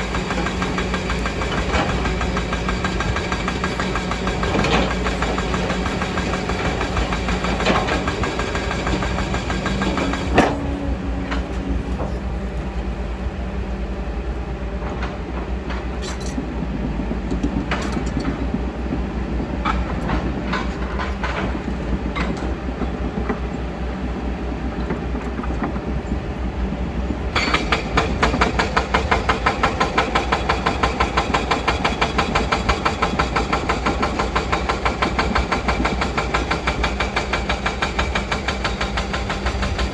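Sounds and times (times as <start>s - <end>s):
machine clicks and knocks: 0.0s - 12.2s
excavator diesel engine running: 0.0s - 39.9s.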